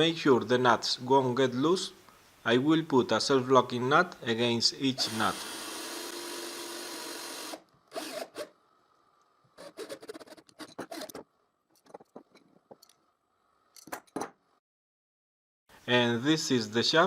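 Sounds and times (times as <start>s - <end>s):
metal nuts clicking and scraping: 9.6s - 13.0s, 13.7s - 14.3s.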